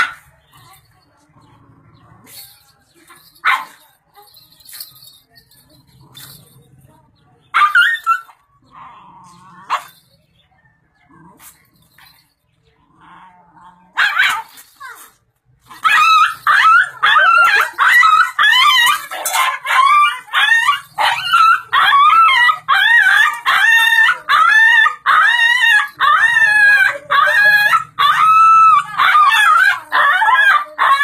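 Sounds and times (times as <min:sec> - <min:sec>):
dog yelping barks: 0:00.0 - 0:00.3, 0:07.5 - 0:08.4, 0:09.7 - 0:10.0, 0:14.0 - 0:15.0, 0:15.7 - 0:31.0.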